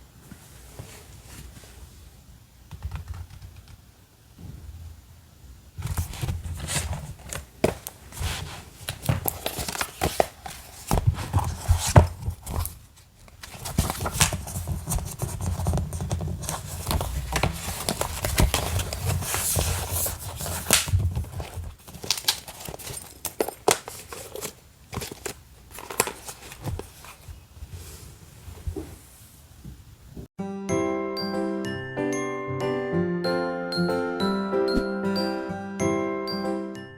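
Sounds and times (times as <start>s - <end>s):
paper rustling and crinkling: 5.8s - 29.1s.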